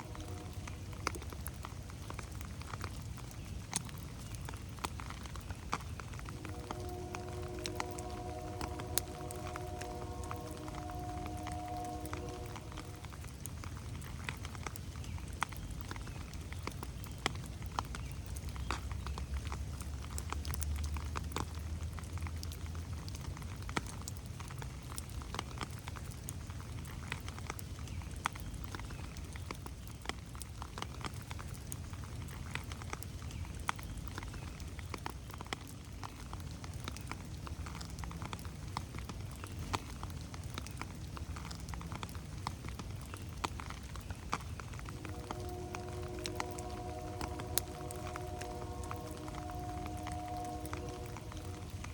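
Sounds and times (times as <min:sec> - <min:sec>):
low rumble: 0:00.0 - 0:01.7, 0:06.2 - 0:14.1, 0:44.7 - 0:51.9
rain falling in a forest: 0:00.0 - 0:51.9.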